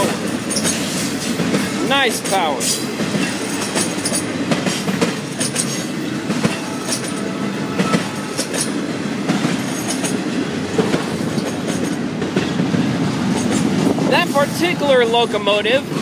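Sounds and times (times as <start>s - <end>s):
train wheels rumbling on rail: 0.0s - 16.0s
wheels clicking over rail joints: 0.0s - 16.0s.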